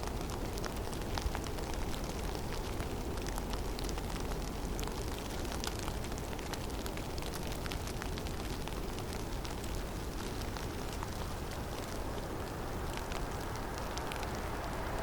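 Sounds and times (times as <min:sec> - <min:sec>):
low rush of wind: 0:07.8 - 0:15.0.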